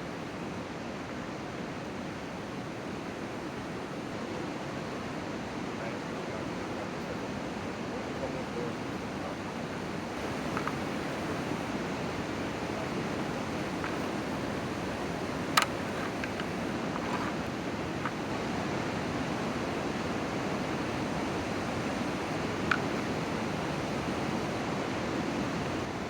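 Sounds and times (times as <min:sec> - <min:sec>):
steady outdoor rushing noise: 0:00.0 - 0:26.0
faint ticks: 0:10.1 - 0:18.4, 0:20.7 - 0:24.4.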